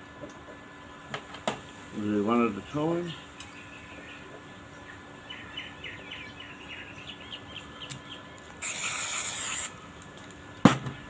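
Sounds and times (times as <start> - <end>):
loud steady hiss: 0.8 - 5.3, 8.5 - 11.0
bird chirping: 3.1 - 8.5.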